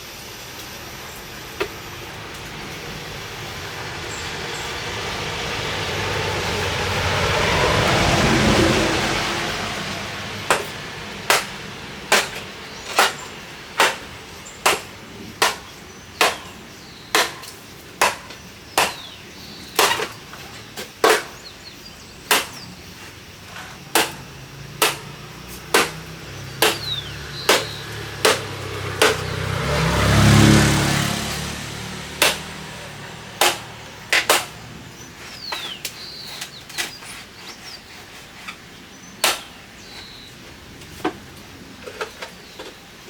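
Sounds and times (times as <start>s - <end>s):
motor vehicle rumble: 0.0s - 43.0s
sharp tool strikes: 10.5s - 19.2s, 19.8s - 20.2s, 21.0s - 21.4s, 22.3s - 22.7s, 23.5s - 29.3s, 32.1s - 34.6s, 39.2s - 39.6s.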